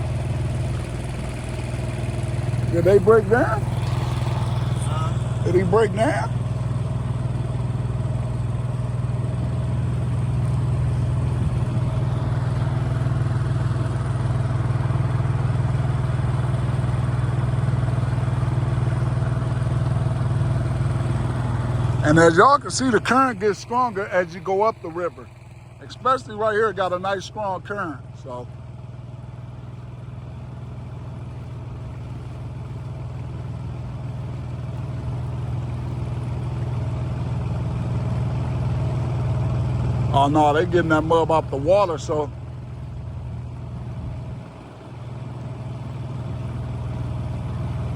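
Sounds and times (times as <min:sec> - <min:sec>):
outboard motor running: 0:00.0 - 0:47.9.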